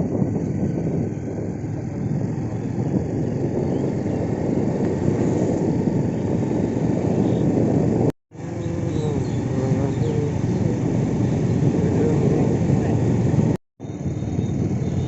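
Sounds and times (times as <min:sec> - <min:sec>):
vehicle rumble and road noise: 0:00.0 - 0:15.0.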